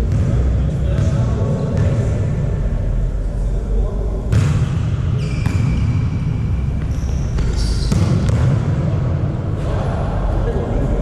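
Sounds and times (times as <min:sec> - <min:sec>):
low background noise: 0:00.0 - 0:11.0
shoe squeaks: 0:05.1 - 0:06.0, 0:06.6 - 0:08.3.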